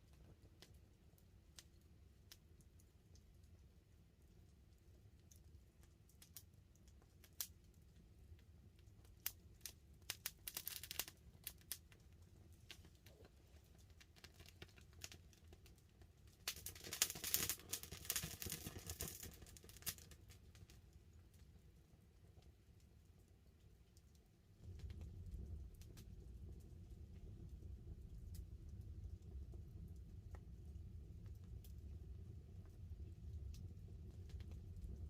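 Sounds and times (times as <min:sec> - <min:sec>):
campfire crackling: 0:04.2 - 0:21.6, 0:24.6 - 0:35.0.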